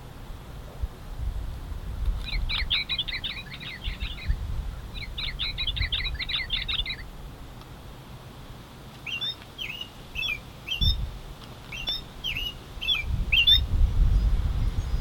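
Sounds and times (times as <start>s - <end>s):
songbird chirping: 2.0s - 7.7s, 8.6s - 15.0s.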